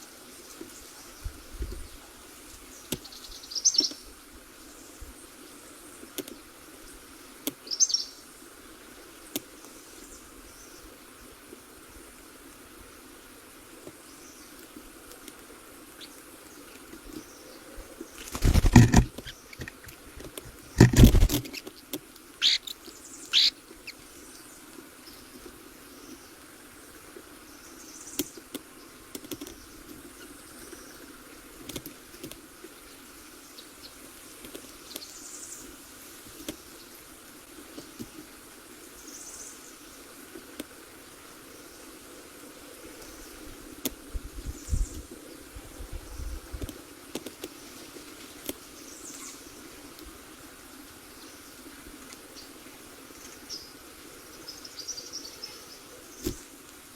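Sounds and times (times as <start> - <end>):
loud rustling: 18.2 - 21.6
short high bird chirps: 22.4 - 23.5
faint high calls: 22.4 - 24.0.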